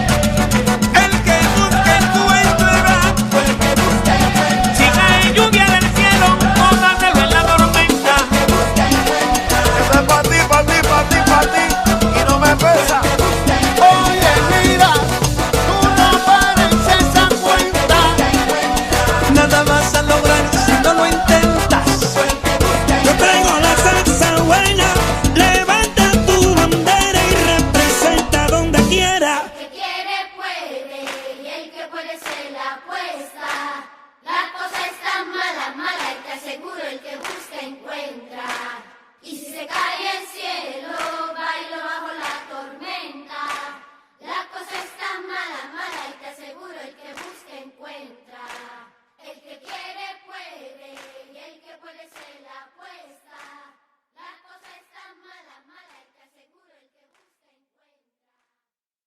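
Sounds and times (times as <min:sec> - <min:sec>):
rhythmic handclaps: 0:00.0 - 0:29.2, 0:31.0 - 0:32.6, 0:33.2 - 0:33.9, 0:34.6 - 0:47.7, 0:48.4 - 0:48.9, 0:49.6 - 0:50.0, 0:50.8 - 0:51.4, 0:52.1 - 0:52.5, 0:53.4 - 0:53.6
group singing a cappella: 0:00.0 - 0:57.2.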